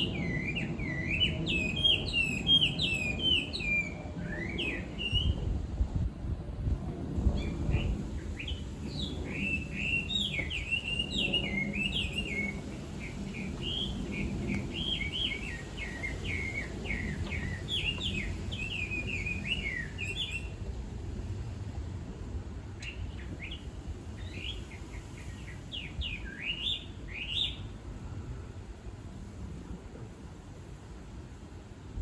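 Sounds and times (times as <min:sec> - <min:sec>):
bird singing whistled phrases: 0:00.0 - 0:05.4, 0:07.8 - 0:12.6, 0:13.4 - 0:20.5.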